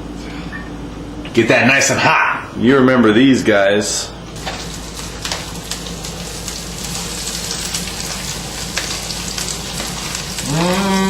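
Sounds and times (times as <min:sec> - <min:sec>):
faint hum: 0:00.0 - 0:11.0
peppers sizzling in oil: 0:04.4 - 0:11.0.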